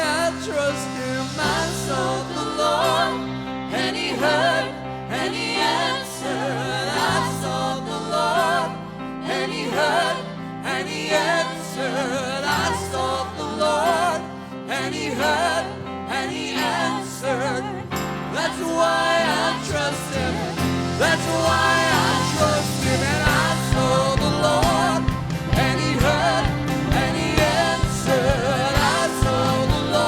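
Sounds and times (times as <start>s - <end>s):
band playing sustained chords: 19.4s - 30.0s.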